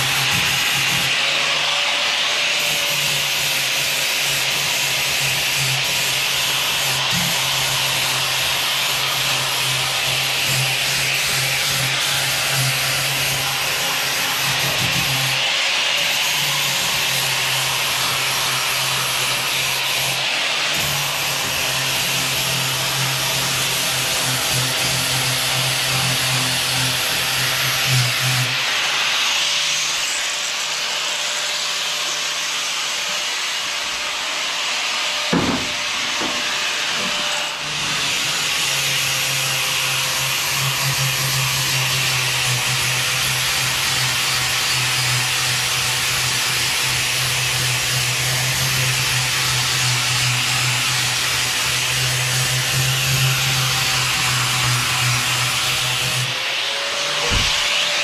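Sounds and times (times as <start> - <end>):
sharp knock: 35.3 - 36.4, 57.2 - 57.7
power tool hissing: 35.4 - 58.0.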